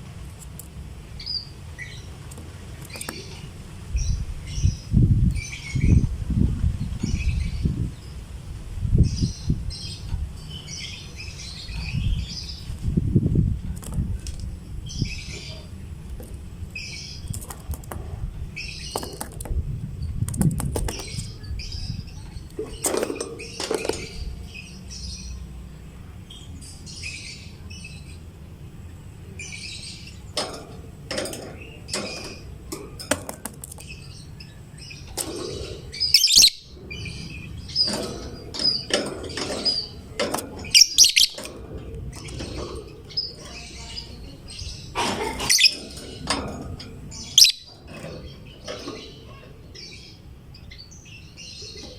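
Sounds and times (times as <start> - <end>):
sharp loud bird calls: 33.9 - 41.4, 47.1 - 51.9
lovebird chirping: 35.9 - 38.0, 40.6 - 41.5, 47.1 - 51.9.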